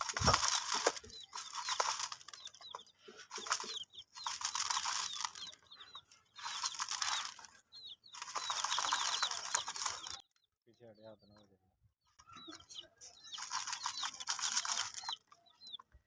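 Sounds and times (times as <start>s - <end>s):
scratchy rustling noise: 0.0s - 5.6s, 6.3s - 10.2s, 13.3s - 15.2s
baby chicks peeping: 0.0s - 16.0s.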